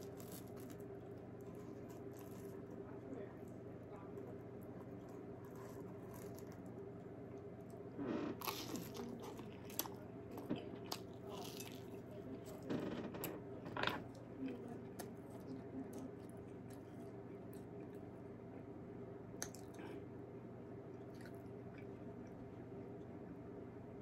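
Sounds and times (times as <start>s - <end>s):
person chewing crunchy food: 4.9s - 6.8s, 8.2s - 12.0s, 21.0s - 22.0s.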